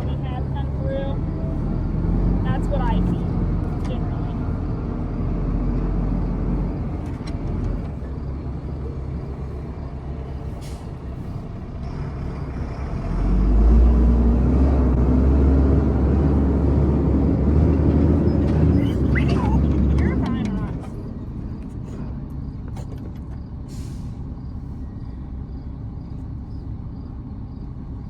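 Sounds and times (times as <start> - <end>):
vehicle engine revving: 0.0 - 22.1.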